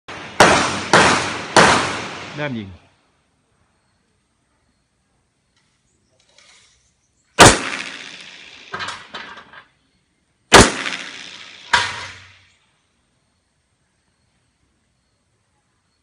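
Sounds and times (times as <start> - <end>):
pistol shots: 0.1 - 2.3, 7.4 - 9.1, 10.5 - 12.4
quieter sharp cracks: 0.1 - 2.4, 7.4 - 9.7, 10.5 - 12.5.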